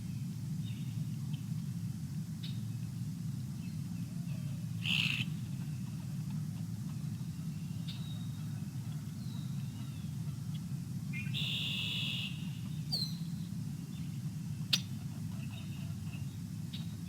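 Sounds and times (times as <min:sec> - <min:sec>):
steady low hum: 0:00.0 - 0:17.0
buzzy bird call: 0:04.8 - 0:05.5, 0:11.1 - 0:13.3
birds chirping and whistling: 0:11.2 - 0:13.4.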